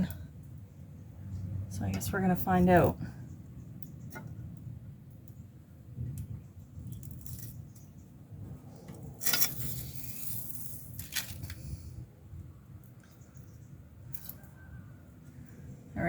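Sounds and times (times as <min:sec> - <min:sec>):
weather strip clinking and rattling: 0:06.8 - 0:08.0, 0:09.0 - 0:11.9, 0:12.9 - 0:14.6
rustle: 0:06.8 - 0:12.0.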